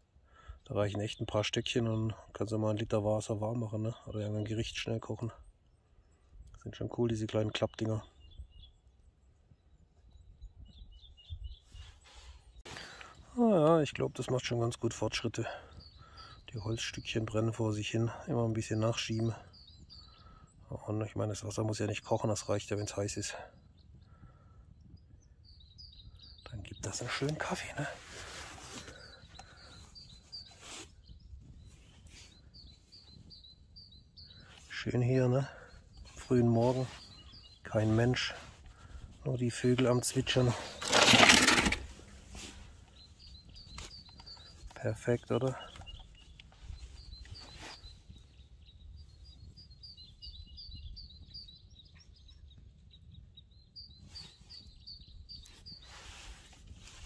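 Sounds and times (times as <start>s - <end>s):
small songbird chirping: 3.7s - 57.0s.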